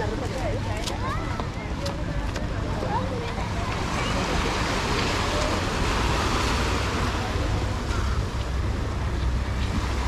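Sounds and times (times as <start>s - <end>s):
sea washing onto beach: 3.2s - 10.0s.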